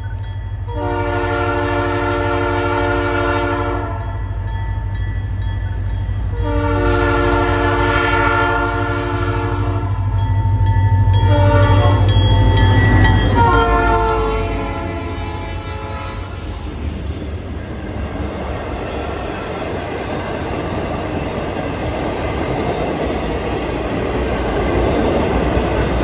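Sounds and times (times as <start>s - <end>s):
locomotive air horn blasts: 0.7s - 4.1s, 6.4s - 10.2s, 11.2s - 12.2s, 13.3s - 16.6s
locomotive engine rumble: 4.2s - 26.0s.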